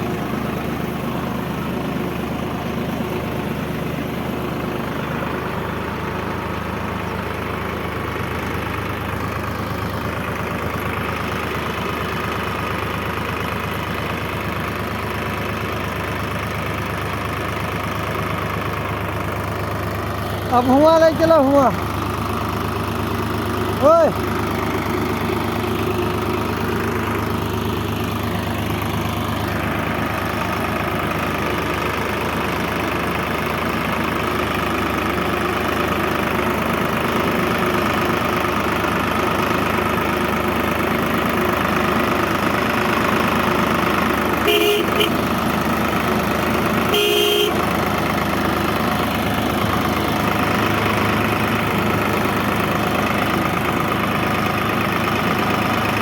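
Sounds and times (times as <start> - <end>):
tractor engine running: 0.0 - 56.0
short horn toots: 44.4 - 45.2, 46.9 - 47.6.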